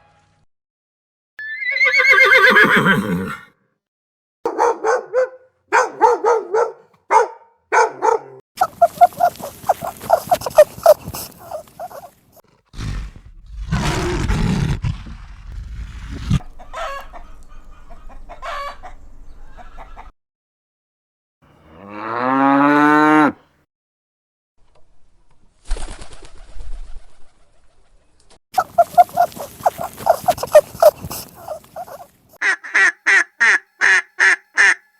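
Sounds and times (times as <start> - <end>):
chickens clucking and cackling: 8.6 - 12.1, 16.4 - 20.1, 28.6 - 32.1.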